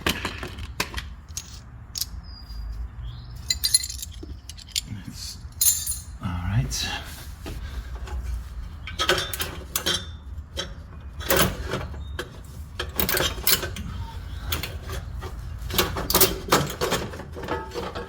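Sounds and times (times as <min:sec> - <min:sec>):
metal tools clanking: 0:03.4 - 0:06.2, 0:12.8 - 0:18.0.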